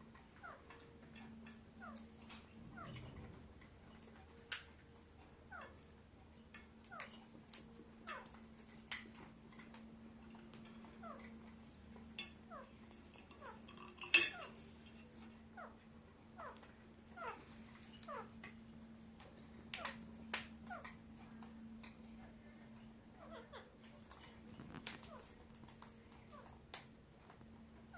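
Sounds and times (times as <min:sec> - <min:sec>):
steady low hum: 0:00.0 - 0:27.9
parakeet chirping and squeaking: 0:00.3 - 0:02.0, 0:05.5 - 0:05.8, 0:06.8 - 0:08.4, 0:10.8 - 0:11.3, 0:16.4 - 0:18.4, 0:20.7 - 0:21.0, 0:23.0 - 0:25.4.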